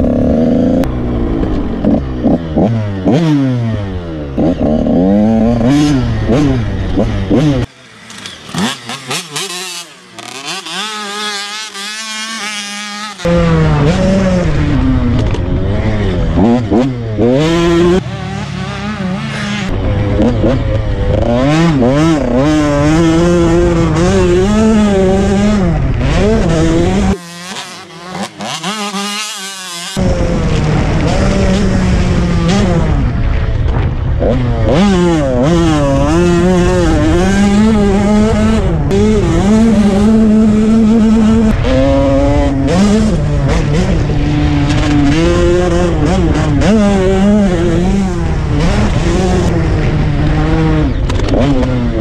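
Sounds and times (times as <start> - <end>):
motocross bike engine revving: 0.0 - 52.0
wind rush: 30.0 - 40.6.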